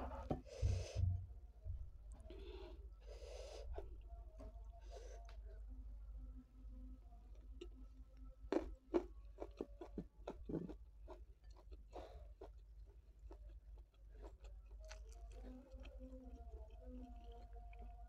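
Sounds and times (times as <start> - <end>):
crisp chewing crunches: 8.5 - 18.0.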